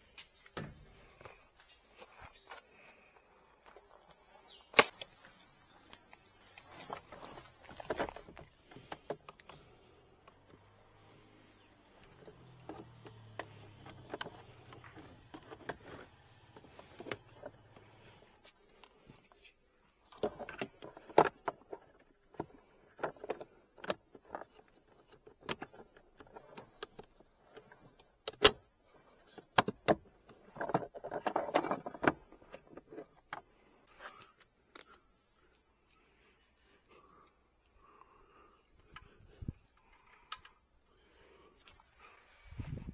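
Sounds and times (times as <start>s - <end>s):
tools and parts clicking and knocking: 11.9s - 17.9s, 20.1s - 33.5s.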